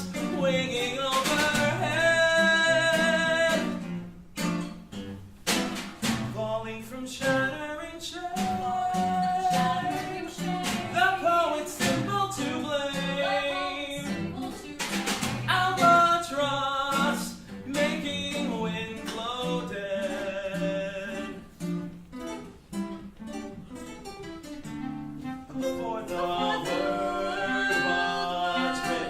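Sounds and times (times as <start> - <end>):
voices singing: 0.0 - 3.9, 6.4 - 21.8, 25.3 - 29.0
instrumental accompaniment: 16.8 - 29.0.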